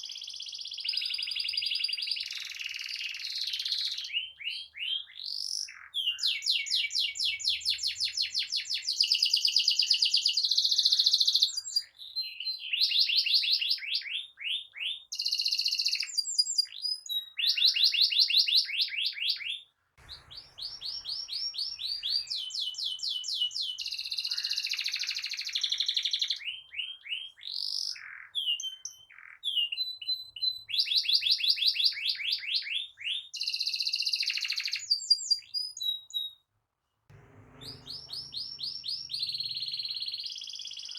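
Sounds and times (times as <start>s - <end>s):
canary singing: 37.1s - 40.9s.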